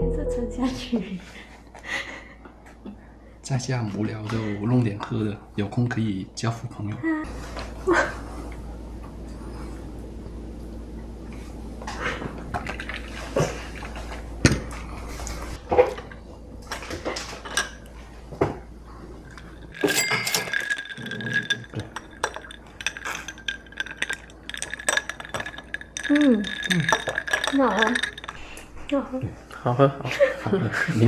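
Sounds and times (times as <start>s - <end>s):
glassware and utensils clinking: 11.9s - 29.0s
liquid pouring: 19.2s - 28.7s.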